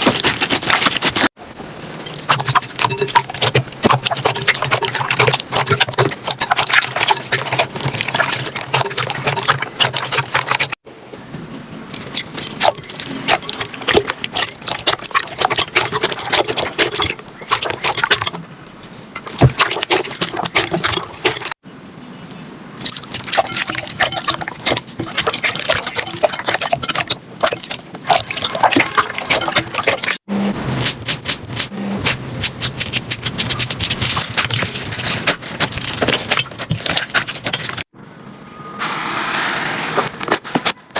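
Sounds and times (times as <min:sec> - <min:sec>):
slime squeezed wet crackling: 0:00.0 - 0:10.8, 0:11.9 - 0:18.4, 0:22.8 - 0:30.2, 0:30.9 - 0:37.9.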